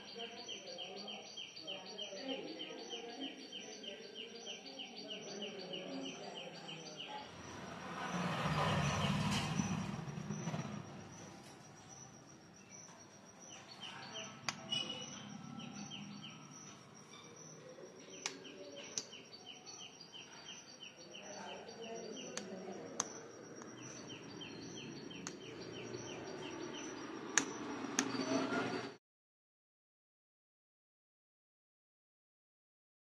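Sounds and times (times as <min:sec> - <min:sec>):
bird chirping rapidly: 0:00.0 - 0:28.9
sharp clicks: 0:18.1 - 0:19.2, 0:25.1 - 0:25.6, 0:26.7 - 0:28.2.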